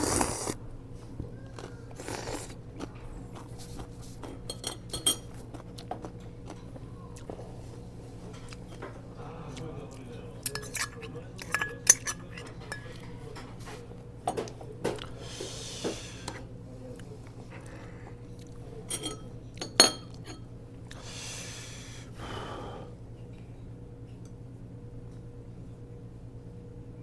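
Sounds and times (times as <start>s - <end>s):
faint steady hum: 0.0s - 27.0s
spoon and chopsticks clinking bowls: 4.4s - 5.3s, 10.4s - 13.0s, 18.9s - 20.5s.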